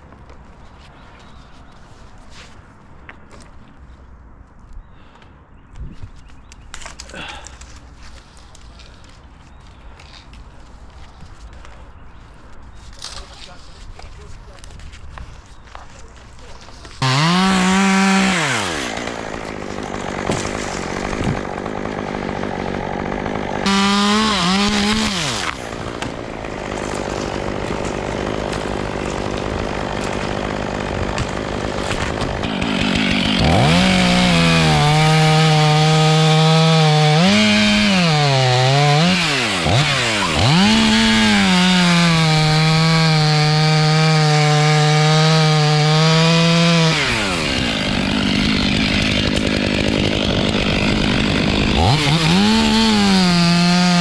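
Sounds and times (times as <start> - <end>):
chainsaw revving: 17.0 - 54.0.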